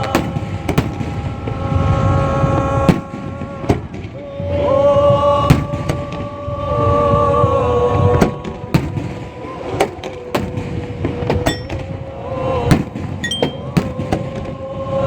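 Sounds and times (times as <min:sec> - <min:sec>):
sustained bending tone: 0:11.5 - 0:12.0, 0:13.2 - 0:13.8.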